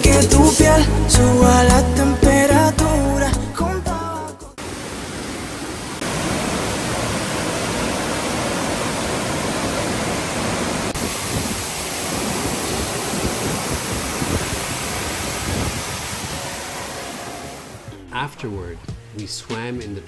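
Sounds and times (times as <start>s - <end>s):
waterfall rushing: 4.6s - 17.9s.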